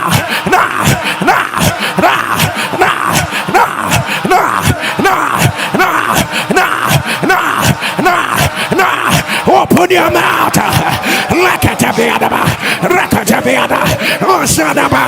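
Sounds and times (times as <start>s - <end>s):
man praying loudly: 0.0s - 15.0s.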